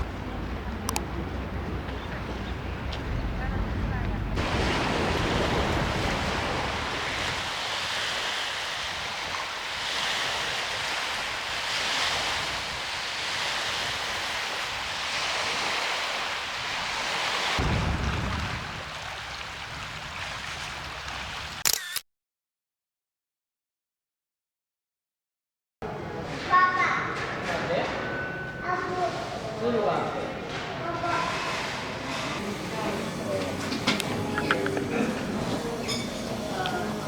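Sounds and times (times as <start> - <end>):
wind on microphone: 0.0 - 21.6
small waves washing on shore: 4.3 - 21.6, 30.8 - 37.0.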